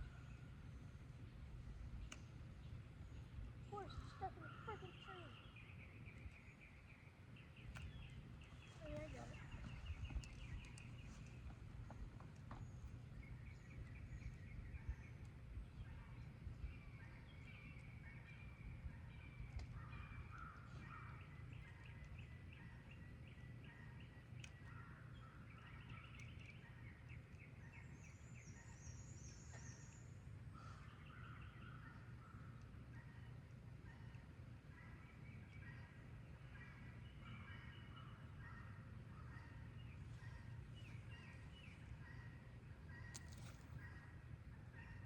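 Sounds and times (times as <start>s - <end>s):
low wind rumble: 0.0s - 29.2s
faint birds chirping: 0.0s - 45.0s.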